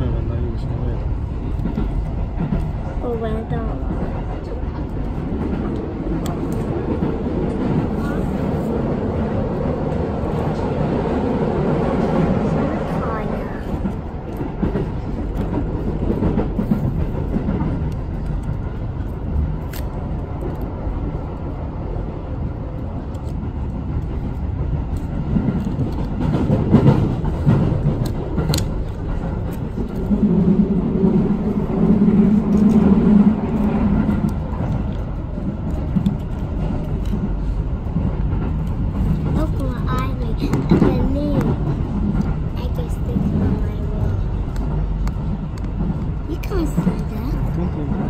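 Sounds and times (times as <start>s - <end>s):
train wheels rumbling: 0.0s - 48.0s.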